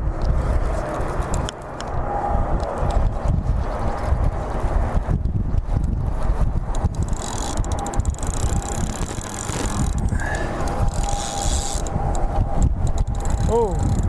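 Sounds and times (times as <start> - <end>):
wind buffeting microphone: 0.0 - 14.0
fishing reel clicking: 5.5 - 14.0.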